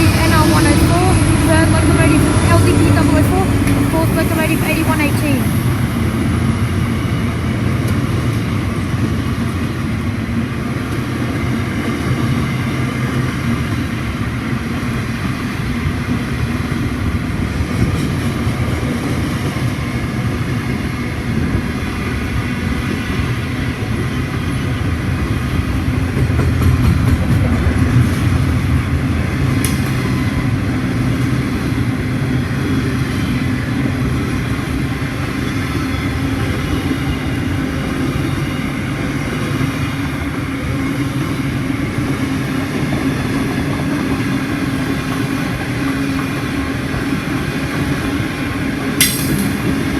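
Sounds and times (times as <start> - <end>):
train wheels rumbling on rails: 0.0 - 49.9
train wagons clanking: 39.1 - 49.9.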